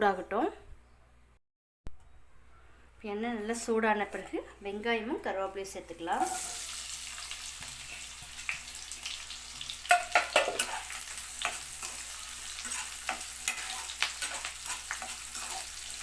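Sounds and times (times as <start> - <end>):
onions sizzling in hot oil: 5.9 - 16.0
spoon stirring and scraping pan: 6.1 - 16.0.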